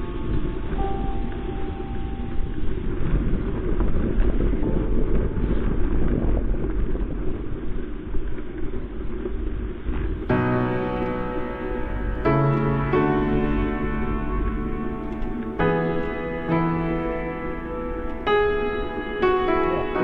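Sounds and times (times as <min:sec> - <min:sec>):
wind rushing on camera microphone: 0:00.0 - 0:20.0
background music: 0:10.3 - 0:20.0.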